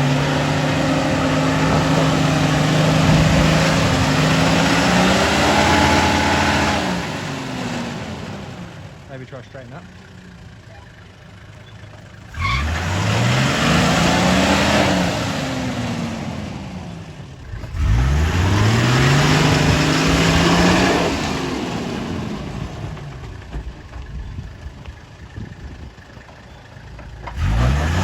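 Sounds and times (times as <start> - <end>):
car engine revving hard: 0.0 - 8.8, 12.3 - 22.9, 27.3 - 28.0.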